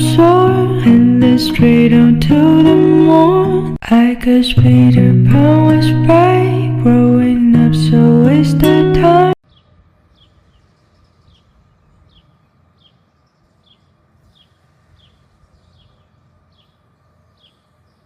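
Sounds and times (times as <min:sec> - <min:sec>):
small bird chirps: 0:09.4 - 0:18.0.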